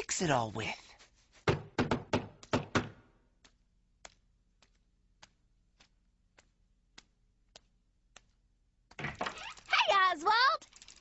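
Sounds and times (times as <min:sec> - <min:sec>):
light evenly spaced ticks: 0:03.3 - 0:08.9.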